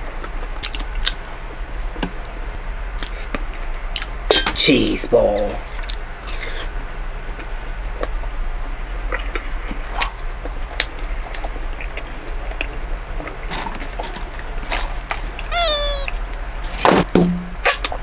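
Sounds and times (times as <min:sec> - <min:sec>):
chewing: 0:10.8 - 0:13.4.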